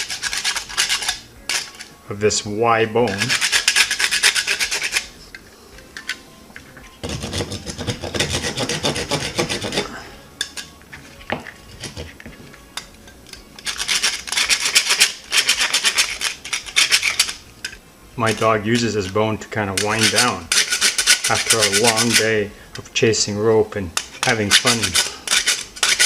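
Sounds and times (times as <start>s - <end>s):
rasp scraping nylon: 0.0s - 1.9s, 3.0s - 5.2s, 7.0s - 10.1s, 13.6s - 17.5s, 19.7s - 22.4s, 24.2s - 26.0s.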